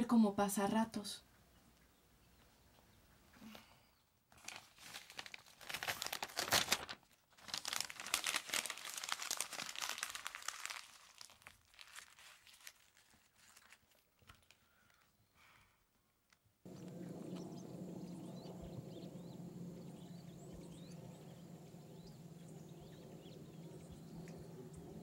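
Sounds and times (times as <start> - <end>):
paper crumpling: 4.3 - 15.2.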